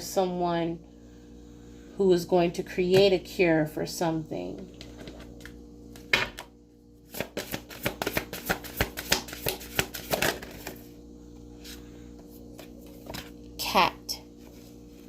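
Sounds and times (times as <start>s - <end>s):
cards snapping: 7.1s - 10.6s
cards clicking while shuffled: 7.1s - 10.8s.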